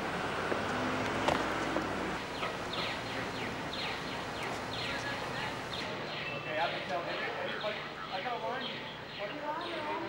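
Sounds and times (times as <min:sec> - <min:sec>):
outdoor background noise: 0:00.0 - 0:10.0
bird chirping rapidly: 0:02.2 - 0:06.8.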